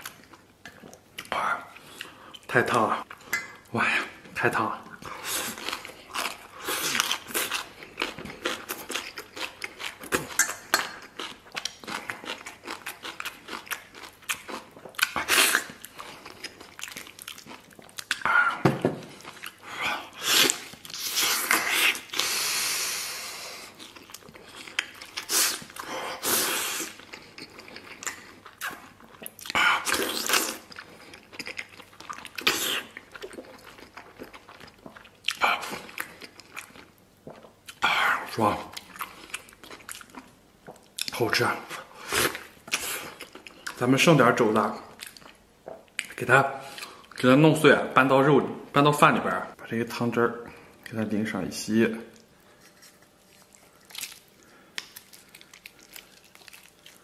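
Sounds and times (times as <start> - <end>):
chewing and smacking: 0.0 - 3.7, 4.9 - 18.3, 19.0 - 19.6, 23.6 - 26.2, 26.9 - 37.8, 38.6 - 41.4, 42.2 - 43.8, 44.9 - 47.3, 52.1 - 57.0.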